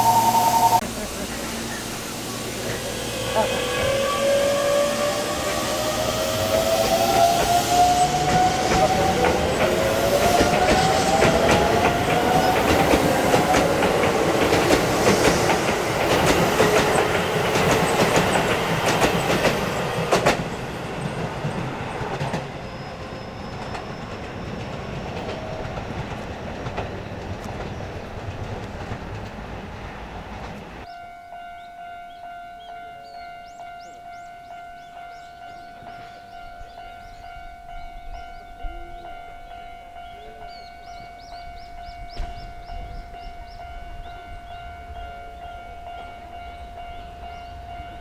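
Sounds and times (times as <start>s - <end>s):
electric train motor whine: 0.0s - 27.6s
wheels clicking over rail joints: 6.4s - 30.9s.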